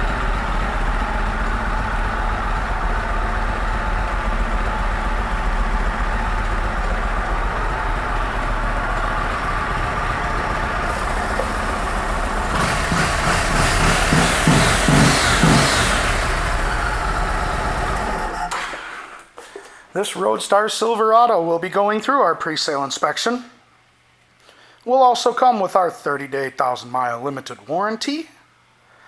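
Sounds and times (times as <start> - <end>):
motorcycle engine idling: 0.0 - 18.5
engine revving in pulses: 0.0 - 19.2.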